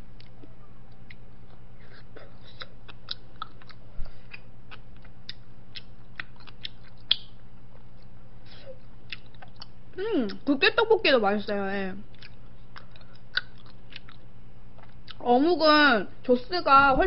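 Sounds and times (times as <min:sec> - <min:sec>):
steady low hum: 0:00.0 - 0:17.0
chewing with wet mouth clicks: 0:00.2 - 0:08.2, 0:09.0 - 0:10.5, 0:12.1 - 0:15.2.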